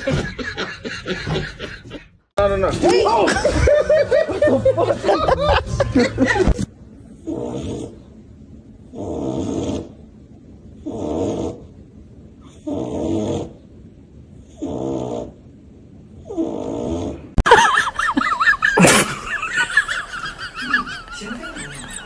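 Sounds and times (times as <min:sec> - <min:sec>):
dog snoring: 0:07.2 - 0:08.0, 0:08.9 - 0:10.0, 0:10.8 - 0:11.7, 0:12.5 - 0:13.6, 0:14.4 - 0:15.4, 0:16.2 - 0:17.4.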